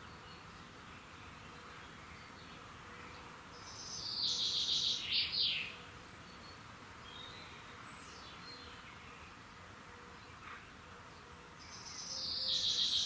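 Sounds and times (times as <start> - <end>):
faint background hiss: 0.0 - 13.0
songbird singing: 3.6 - 9.5, 11.6 - 13.0.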